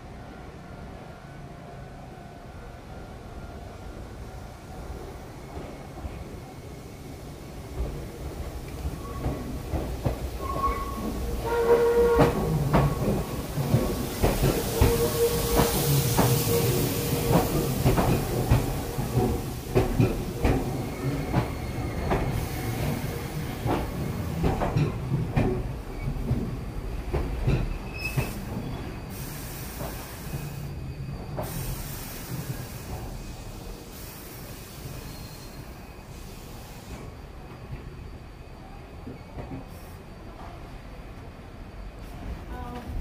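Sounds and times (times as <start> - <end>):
train rumble: 1.4 - 43.0
train wheels clacking on rails: 7.6 - 35.2
train wheel squeals: 8.7 - 43.0.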